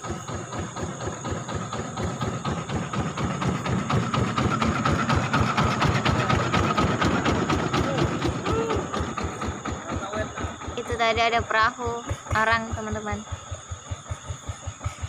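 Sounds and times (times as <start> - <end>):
crickets and night insects: 0.0 - 15.0
small boat engine putting: 0.0 - 15.0.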